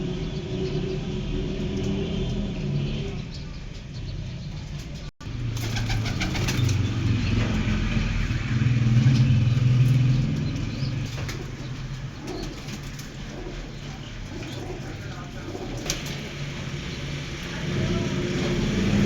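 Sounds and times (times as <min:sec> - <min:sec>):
pigeons flapping wings: 0:05.3 - 0:07.6, 0:09.8 - 0:16.8.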